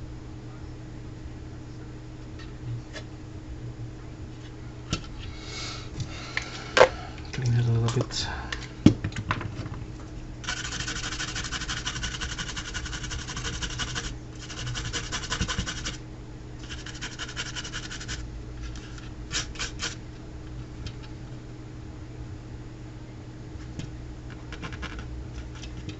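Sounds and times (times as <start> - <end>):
brush scrubbing circuit board: 10.4 - 16.0, 16.6 - 20.0.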